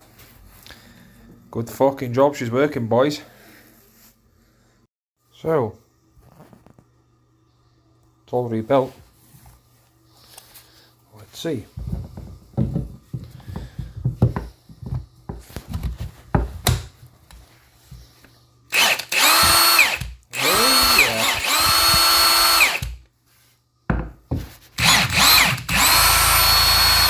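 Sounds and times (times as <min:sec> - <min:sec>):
impact gun motor whirring: 0:18.7 - 0:23.0, 0:24.8 - 0:27.0.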